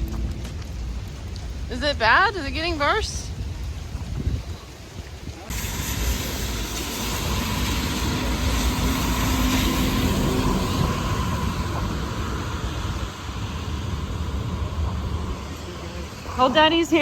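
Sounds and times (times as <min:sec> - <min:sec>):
engine hum: 0:00.0 - 0:02.0, 0:05.5 - 0:17.0
tyres hissing on wet road: 0:00.4 - 0:17.0.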